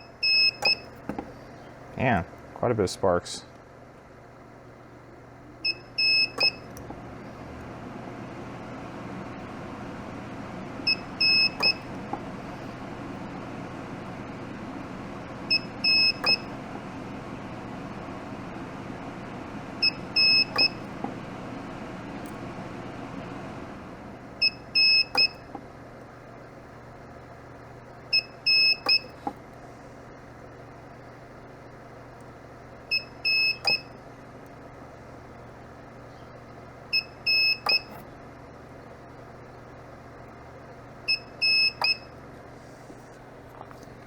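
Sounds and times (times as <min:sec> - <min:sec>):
short electronic beeps: 0:00.0 - 0:00.9, 0:05.6 - 0:06.7, 0:10.9 - 0:11.8, 0:15.5 - 0:16.5, 0:24.4 - 0:25.4, 0:28.1 - 0:29.2, 0:32.9 - 0:33.9, 0:36.9 - 0:38.0, 0:41.1 - 0:42.1.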